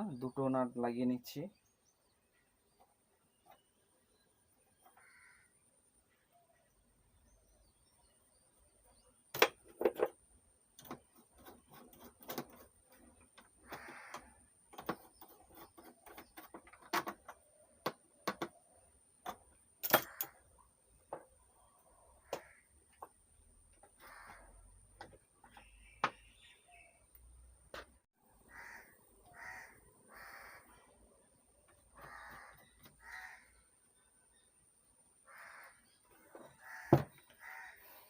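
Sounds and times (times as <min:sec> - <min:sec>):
metal hardware clicks and clinks: 0:19.2 - 0:20.4.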